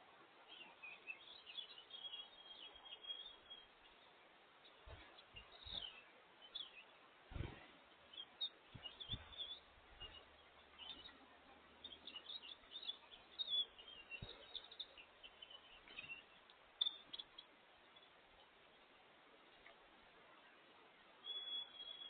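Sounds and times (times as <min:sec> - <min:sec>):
small songbirds chirping: 0:00.0 - 0:22.0
soft low thumps: 0:07.3 - 0:07.8, 0:08.6 - 0:10.2.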